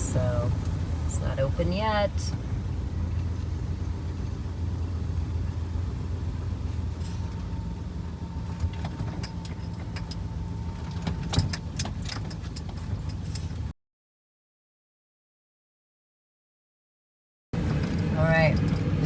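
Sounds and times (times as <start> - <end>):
sharp clicks and rattles: 0.0 - 13.7, 17.6 - 19.0
vehicle engine idling: 0.0 - 13.7, 17.6 - 19.0.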